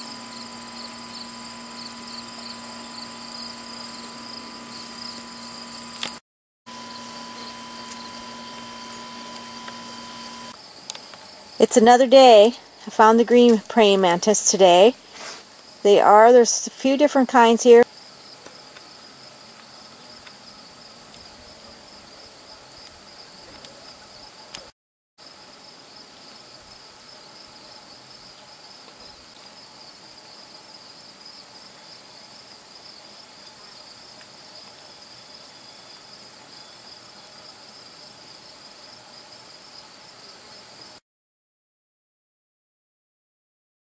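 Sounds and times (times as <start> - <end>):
insects trilling: 0.0 - 16.4.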